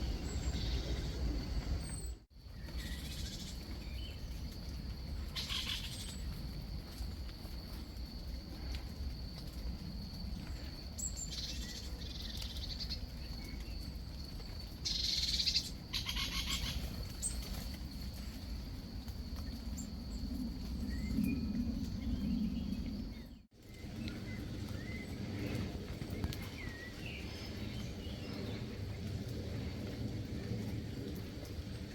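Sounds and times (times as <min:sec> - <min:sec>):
birds chattering: 0:00.0 - 0:04.3, 0:14.8 - 0:17.5
low outdoor rumble: 0:00.0 - 0:31.9.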